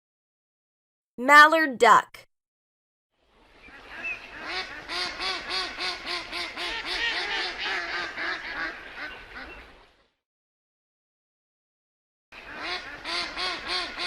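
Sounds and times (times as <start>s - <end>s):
duck quacking: 4.3s - 9.5s, 12.5s - 14.0s.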